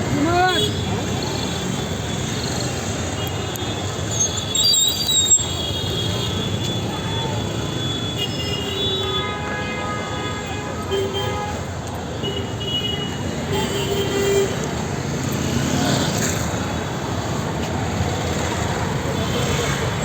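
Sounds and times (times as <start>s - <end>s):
busy street traffic: 0.0s - 20.0s
vehicle horns honking: 5.2s - 14.6s.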